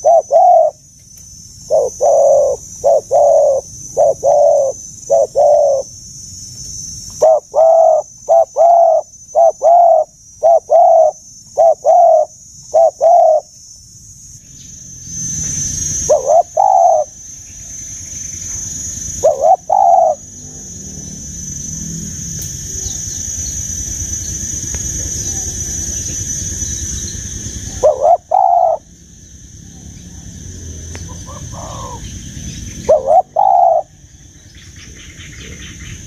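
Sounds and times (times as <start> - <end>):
dove cooing: 0.0 - 0.9, 1.6 - 5.9, 7.1 - 13.5, 15.2 - 17.2, 18.4 - 21.7, 27.6 - 29.0, 31.0 - 34.1.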